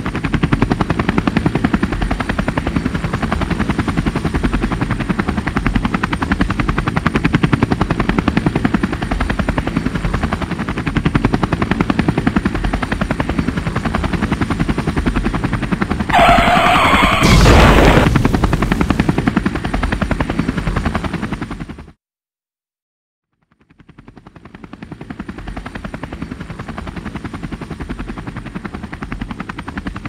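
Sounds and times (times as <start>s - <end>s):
helicopter rotor chopping: 0.0s - 21.9s
short harsh screech: 16.1s - 18.1s
loud crash: 16.2s - 18.9s.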